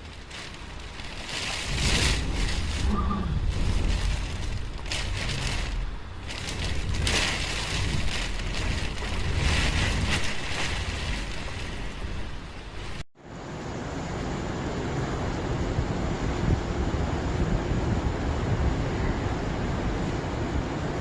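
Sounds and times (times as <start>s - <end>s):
wind buffeting microphone: 0.0s - 13.0s
heavy rain: 0.0s - 13.5s
gusting wind: 0.0s - 21.0s.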